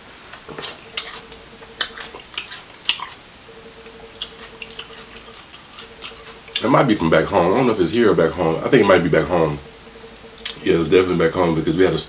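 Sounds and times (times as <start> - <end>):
person chewing food: 0.5 - 3.2, 4.0 - 6.6.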